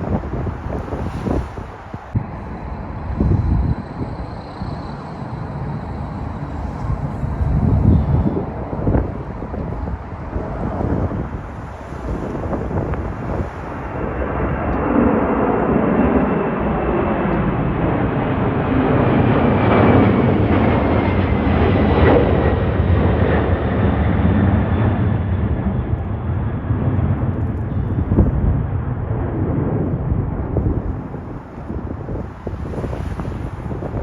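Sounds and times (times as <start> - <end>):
jet airliner passing: 0.0 - 34.0
faint falling whine: 2.2 - 9.0.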